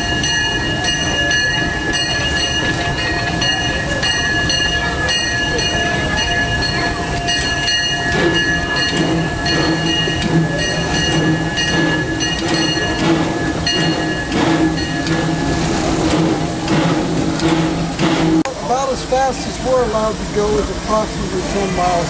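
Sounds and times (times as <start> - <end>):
steam locomotive rumbling and clanking: 0.0 - 22.0.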